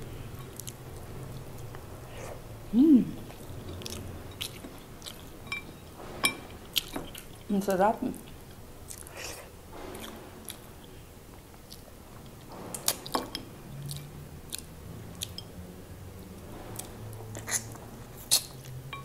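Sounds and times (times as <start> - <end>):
soft wet chewing: 0.2 - 2.4, 3.2 - 5.7, 8.2 - 13.2, 13.8 - 15.6.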